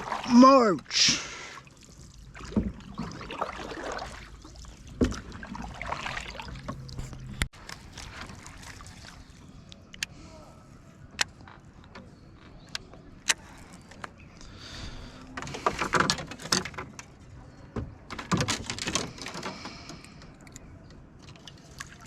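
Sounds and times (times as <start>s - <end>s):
gear clicking and rattling in canoe: 6.5s - 8.8s, 11.0s - 22.0s.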